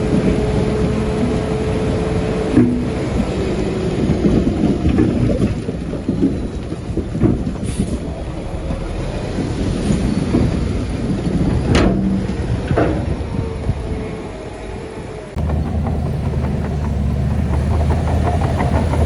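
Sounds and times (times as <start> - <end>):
bulldozer diesel rumble: 15.4 - 19.0
metallic clanks: 15.4 - 19.0.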